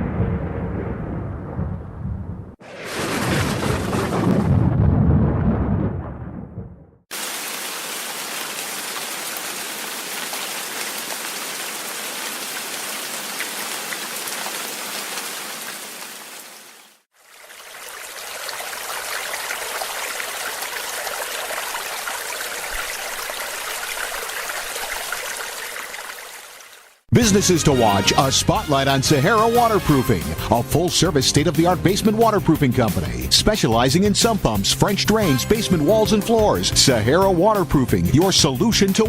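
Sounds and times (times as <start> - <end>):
deep rumble of thunder: 0.0 - 7.0
heavy rain: 7.1 - 27.0.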